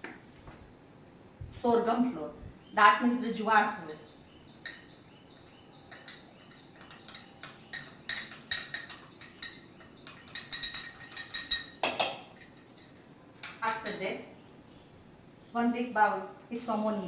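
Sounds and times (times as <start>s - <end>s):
metal utensils and bowls clinking: 5.8s - 14.0s.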